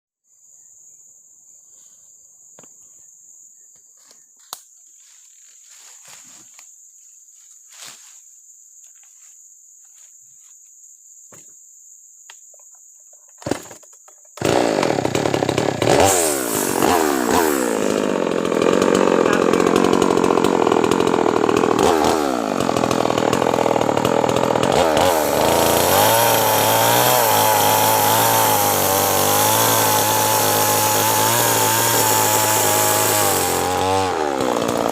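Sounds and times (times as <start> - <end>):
chainsaw revving: 13.4 - 13.8, 14.4 - 34.9.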